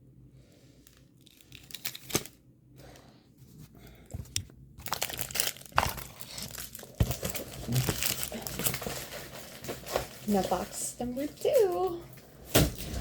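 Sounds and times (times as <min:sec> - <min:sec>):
plastic packaging crinkling: 0:00.8 - 0:02.4, 0:04.2 - 0:12.0.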